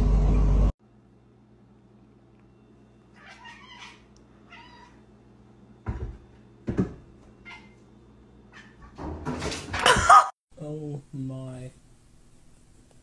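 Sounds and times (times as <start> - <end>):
cat meowing softly: 3.2 - 5.0.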